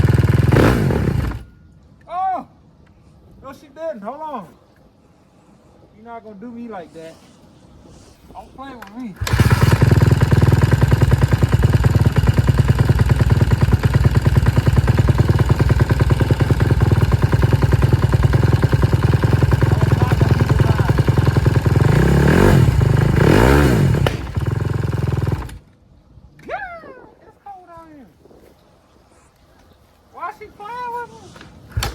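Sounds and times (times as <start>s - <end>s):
dirt bike engine idling and revving: 0.0s - 1.5s, 9.2s - 25.6s.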